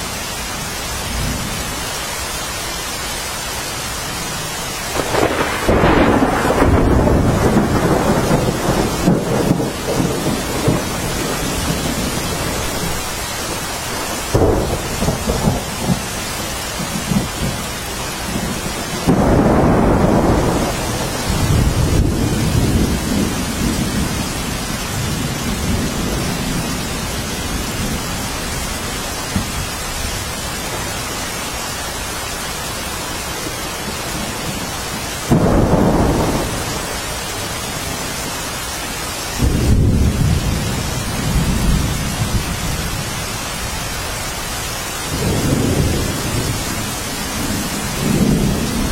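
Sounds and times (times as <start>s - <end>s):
heavy rain hissing: 0.0s - 48.9s
thunder rolling: 4.9s - 28.5s, 33.9s - 38.1s, 39.4s - 43.2s, 45.1s - 48.9s.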